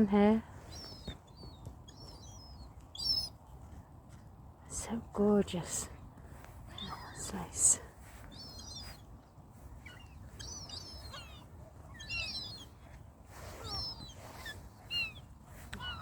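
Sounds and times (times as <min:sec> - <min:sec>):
birds chirping: 0:00.0 - 0:04.0, 0:04.7 - 0:16.0.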